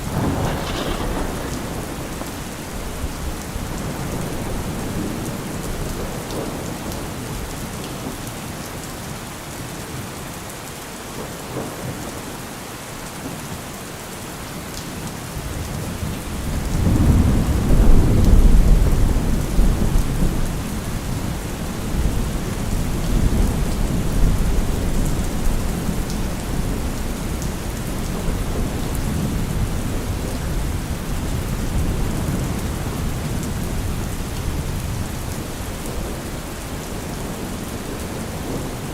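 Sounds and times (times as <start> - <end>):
rolling thunder: 0.0 - 7.5, 15.4 - 38.9
steady rain falling: 0.0 - 38.9.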